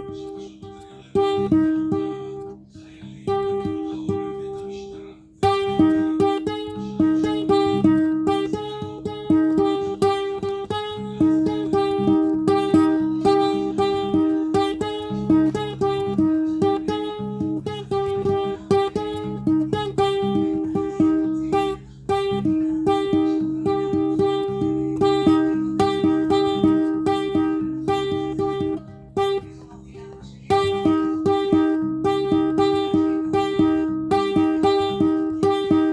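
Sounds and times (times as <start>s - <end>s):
solo plucked guitar: 0.0s - 35.9s.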